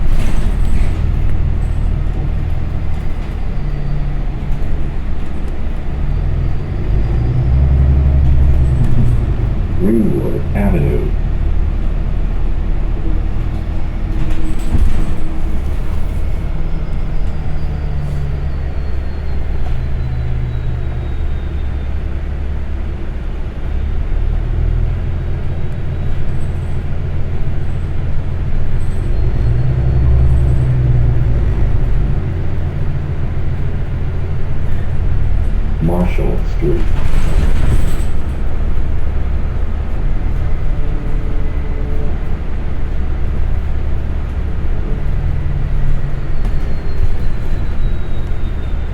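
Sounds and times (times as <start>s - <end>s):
bus engine and road rumble: 0.0s - 48.9s.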